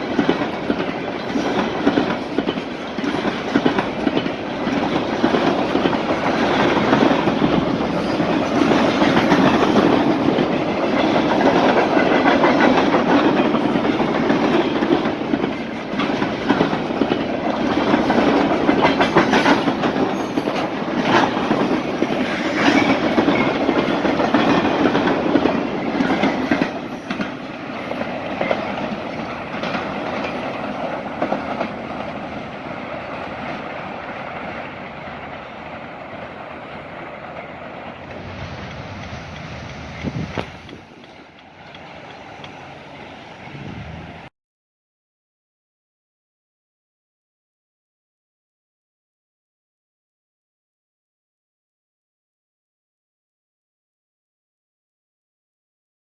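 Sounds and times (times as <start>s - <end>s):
train wheels clacking over rail joints: 0.0s - 43.6s.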